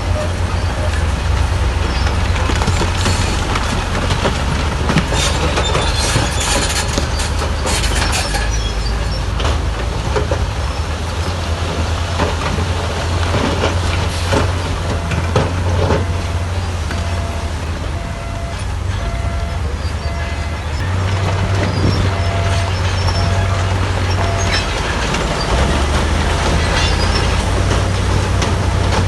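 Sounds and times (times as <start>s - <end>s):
bulldozer diesel engine running: 0.0s - 29.0s
metal and stone clattering: 21.0s - 29.0s.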